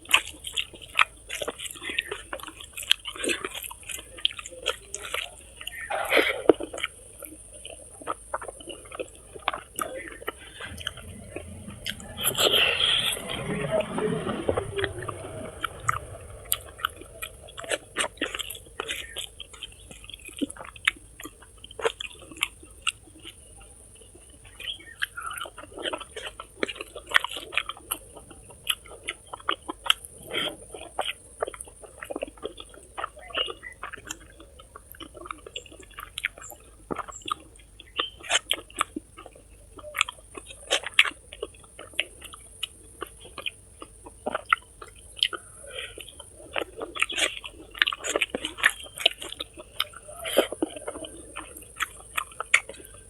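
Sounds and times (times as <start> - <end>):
chewing and biting food: 31.0 - 53.0.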